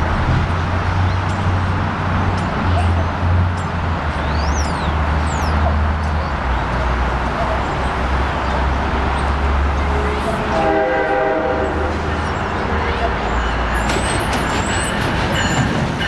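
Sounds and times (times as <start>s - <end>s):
distant train rumble: 0.0s - 16.0s
road noise: 0.0s - 16.0s
wind: 0.0s - 16.0s
train horn: 9.8s - 12.1s.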